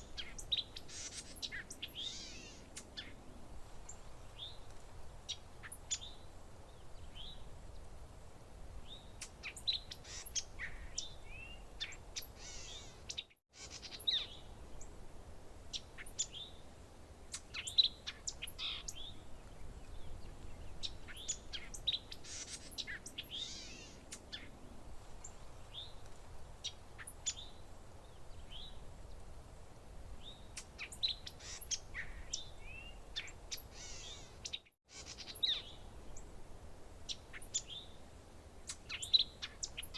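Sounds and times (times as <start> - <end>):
songbirds chirping and trilling: 0.0 - 8.1, 8.7 - 15.0, 15.6 - 36.4, 37.0 - 39.9
faint background hiss: 0.0 - 39.9.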